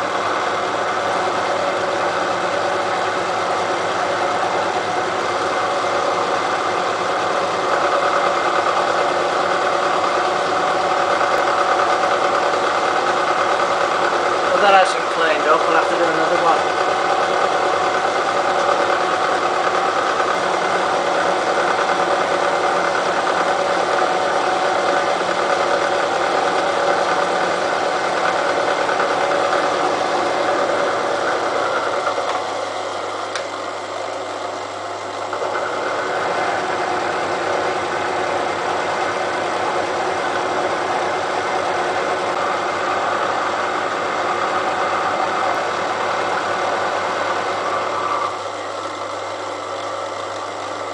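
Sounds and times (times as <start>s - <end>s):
milling machine cutting steel: 0.0s - 50.9s.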